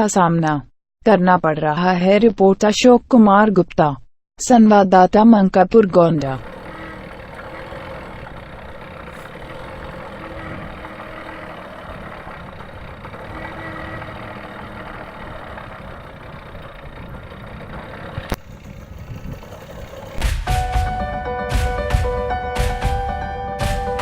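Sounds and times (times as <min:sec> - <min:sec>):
vehicle engine running: 0:06.2 - 0:20.2.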